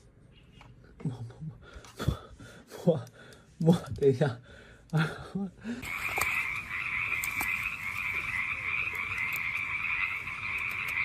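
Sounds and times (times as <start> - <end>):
chorus of frogs calling: 5.8 - 11.0.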